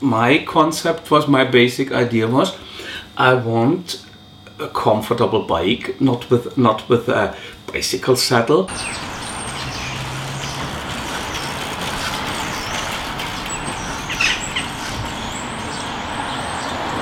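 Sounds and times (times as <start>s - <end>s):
road traffic noise: 8.7s - 17.0s.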